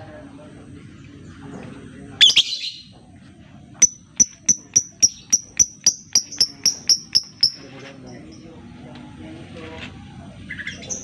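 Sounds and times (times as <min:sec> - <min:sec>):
bird high ticking call: 0:02.2 - 0:02.8, 0:03.8 - 0:07.7.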